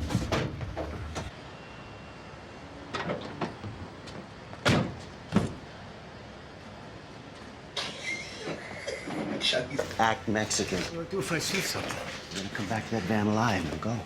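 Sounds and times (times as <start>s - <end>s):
van sliding door knocks: 3.1s - 5.7s.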